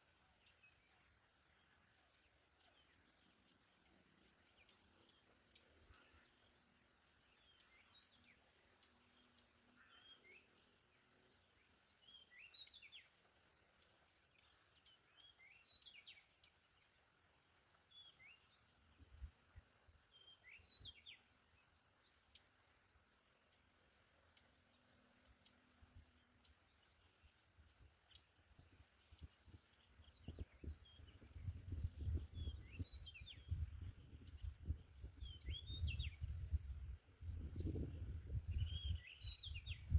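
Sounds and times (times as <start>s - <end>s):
bird chirps: 0.0s - 17.0s, 17.9s - 22.8s, 23.4s - 39.9s.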